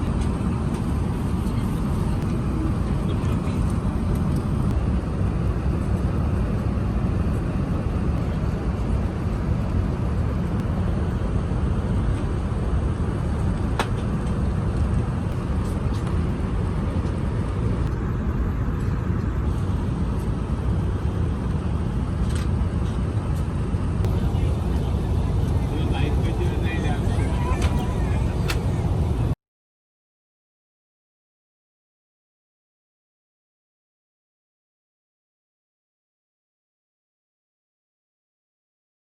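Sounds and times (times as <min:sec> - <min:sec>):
airplane cabin engine rumble: 0:00.0 - 0:29.4.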